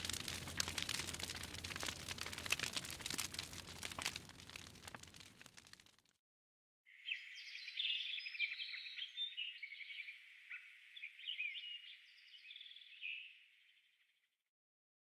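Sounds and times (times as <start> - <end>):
birds chirping: 7.0 - 13.7.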